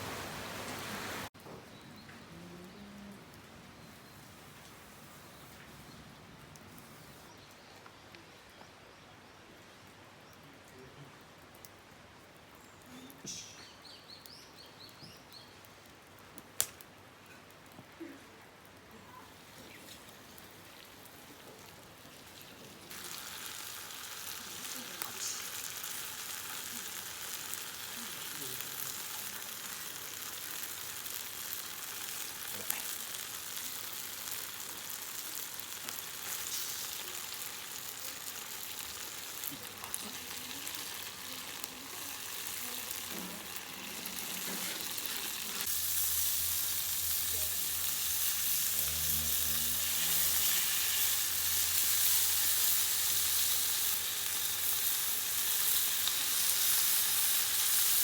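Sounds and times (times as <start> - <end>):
food sizzling in a pan: 0.0 - 1.3, 13.2 - 15.5, 19.0 - 58.0.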